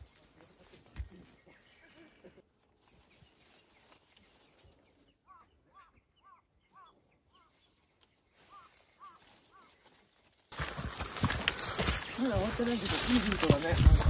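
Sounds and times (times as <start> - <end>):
faint bird calls: 1.1 - 10.4.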